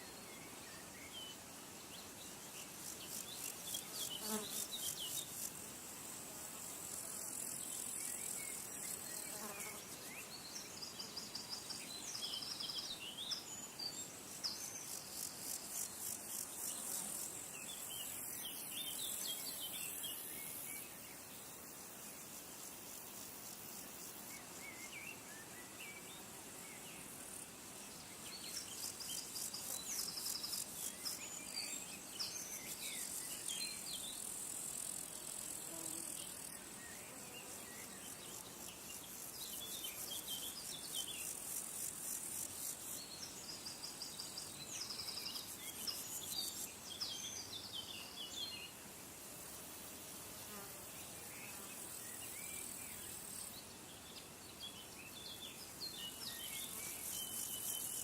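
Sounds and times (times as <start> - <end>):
insect chorus trilling: 54.7 - 58.0.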